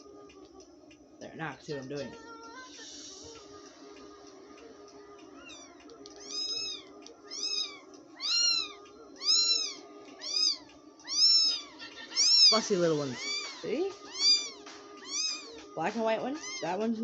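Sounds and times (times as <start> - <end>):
newborn kittens mewing: 5.4 - 15.6, 16.4 - 16.8.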